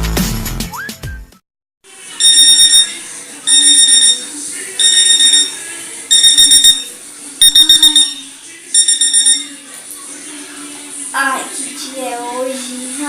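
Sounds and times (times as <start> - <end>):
alarm clock beeping: 2.2 - 9.6.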